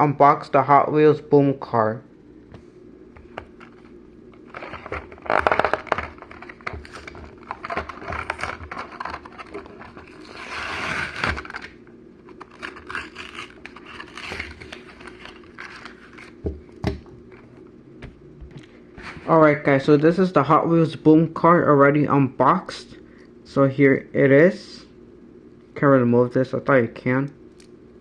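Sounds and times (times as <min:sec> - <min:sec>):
packaging crinkling and tearing: 0:04.4 - 0:16.4.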